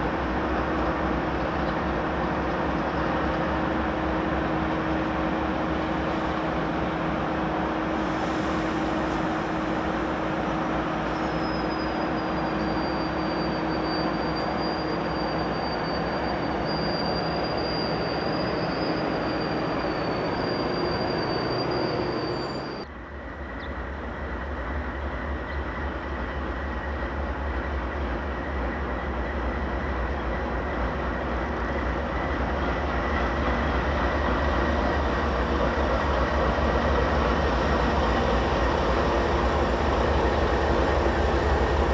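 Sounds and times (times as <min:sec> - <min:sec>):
locomotives rumbling past: 0:03.1 - 0:22.9
high wheel squeal: 0:04.5 - 0:22.9.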